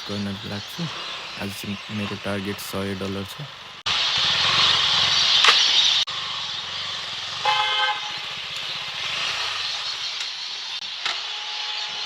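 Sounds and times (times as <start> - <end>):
low rumbling vehicle noise: 0.0 - 11.1
short vehicle horn toot: 7.4 - 8.2.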